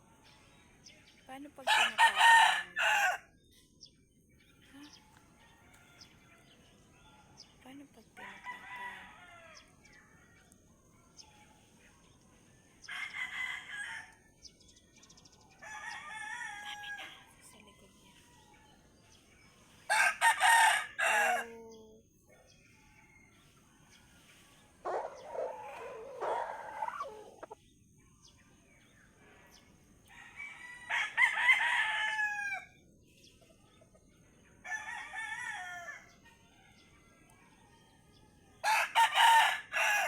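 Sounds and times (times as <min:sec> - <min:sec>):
roosters crowing: 0:01.7 - 0:03.3, 0:08.2 - 0:09.8, 0:12.8 - 0:14.3, 0:15.6 - 0:17.4, 0:19.9 - 0:21.5, 0:24.8 - 0:27.6, 0:30.1 - 0:32.8, 0:34.6 - 0:36.2, 0:38.6 - 0:40.0.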